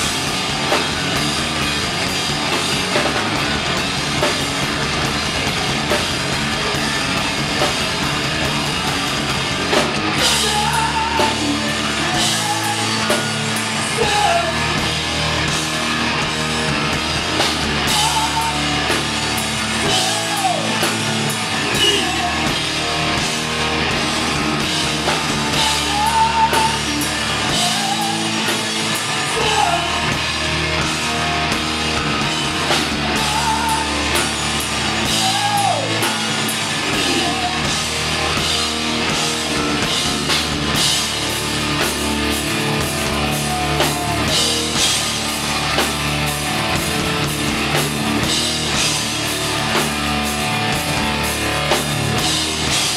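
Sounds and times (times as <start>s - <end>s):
bass guitar: 0.0s - 52.9s
distorted electric guitar: 0.0s - 52.9s
drum kit: 0.0s - 52.9s
person singing: 10.2s - 14.9s, 17.8s - 19.0s, 19.8s - 22.8s, 25.5s - 30.3s, 33.0s - 34.3s, 35.0s - 38.0s, 43.0s - 45.0s.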